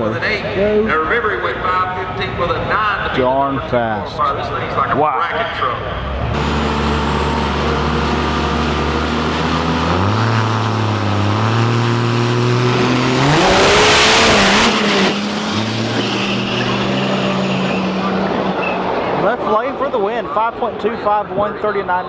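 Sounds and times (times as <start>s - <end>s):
drag racing engines revving: 0.0s - 21.7s
vehicle passing at full throttle: 5.7s - 20.3s.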